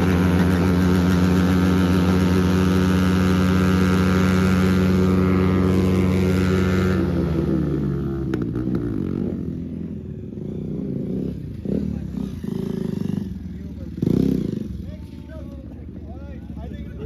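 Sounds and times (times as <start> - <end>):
motorcycle engine at high revs: 0.0 - 15.1.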